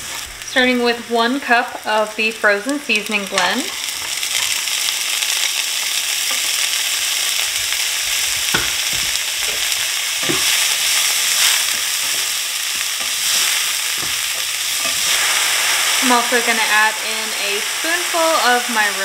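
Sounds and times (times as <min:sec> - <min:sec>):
sausage sizzling in oil: 0:00.0 - 0:19.0
spatula scraping a skillet: 0:07.6 - 0:16.0.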